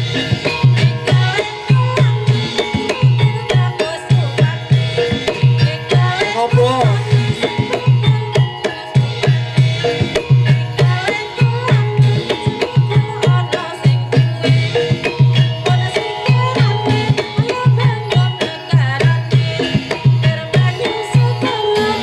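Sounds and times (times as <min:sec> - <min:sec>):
hand drums beating: 0:00.0 - 0:22.0
ringing metallophone tones: 0:00.0 - 0:22.0
bending melody line: 0:02.3 - 0:08.4.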